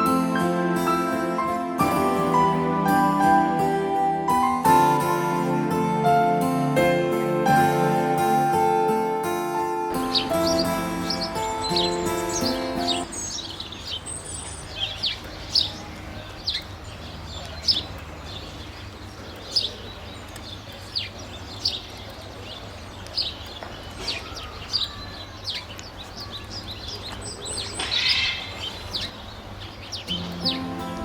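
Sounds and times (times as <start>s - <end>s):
small birds chirping: 9.6s - 31.0s.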